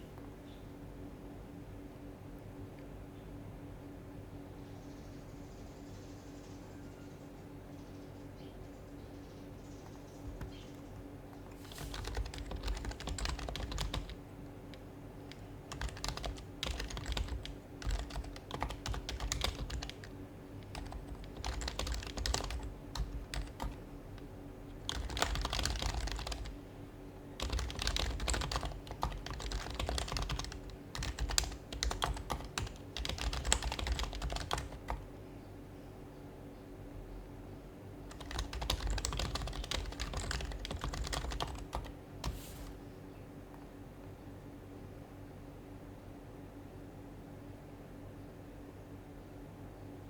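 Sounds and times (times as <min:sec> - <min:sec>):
faint steady hum: 0:00.0 - 0:50.0
typing on a keyboard: 0:10.2 - 0:26.6, 0:27.4 - 0:35.0, 0:38.1 - 0:42.4.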